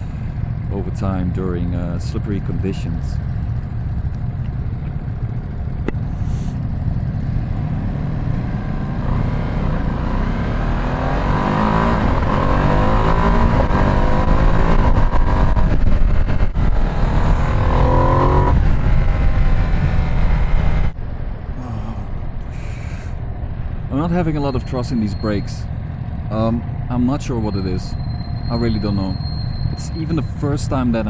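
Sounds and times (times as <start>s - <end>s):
motorcycle engine revving: 3.2s - 21.0s.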